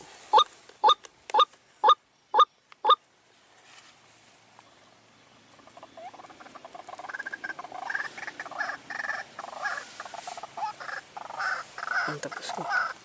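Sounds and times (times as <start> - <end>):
animal chattering chirps: 5.6 - 13.0.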